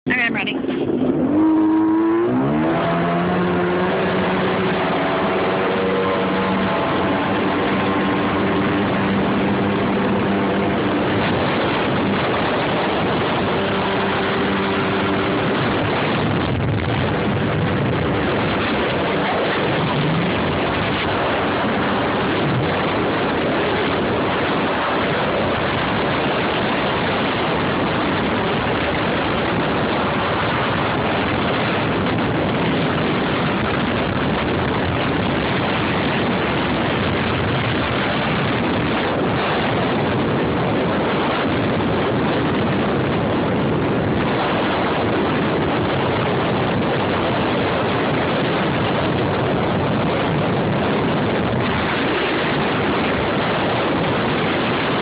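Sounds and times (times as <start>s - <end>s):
jet ski running on water: 0.1s - 55.0s.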